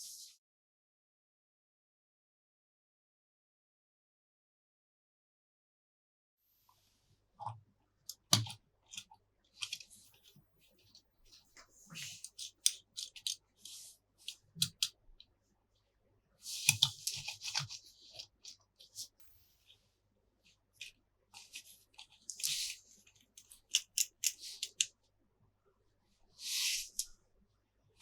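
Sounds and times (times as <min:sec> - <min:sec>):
plastic clicking: 0:08.1 - 0:09.9, 0:14.2 - 0:15.0
snipping: 0:12.0 - 0:14.9.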